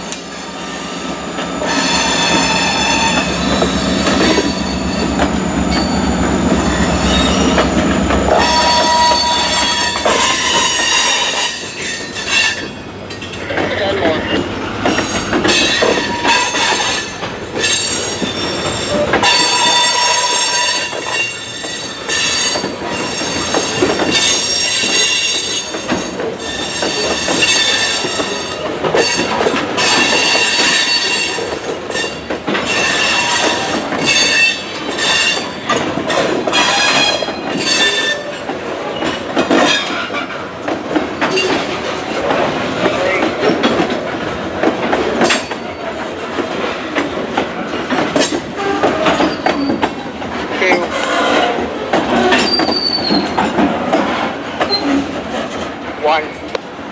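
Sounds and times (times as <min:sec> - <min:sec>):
train wheels squealing: 0:00.3 - 0:12.8, 0:14.2 - 0:38.4, 0:48.6 - 0:50.0, 0:52.2 - 0:53.5, 0:54.6 - 0:55.1
freight cars clattering and rumbling: 0:09.1 - 0:19.8.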